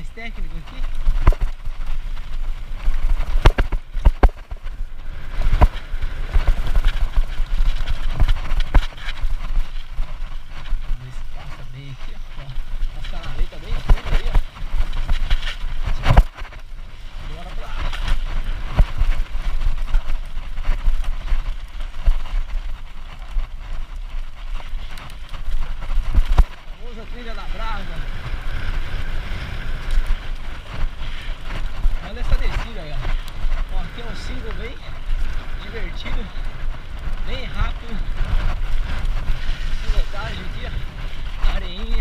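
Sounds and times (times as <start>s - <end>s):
bike knocking and rattling: 0.0s - 42.0s
wind buffeting microphone: 0.0s - 42.0s
bike wheels knocking on stones: 0.7s - 10.9s, 23.7s - 26.7s.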